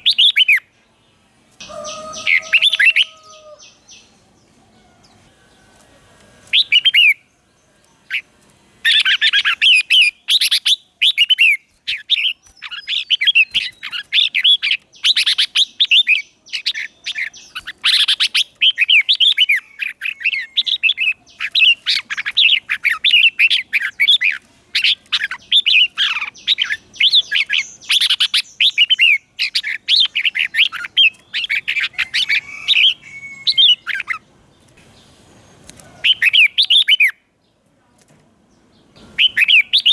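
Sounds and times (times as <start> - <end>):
bulbul singing warbling phrases: 39.0 - 39.9.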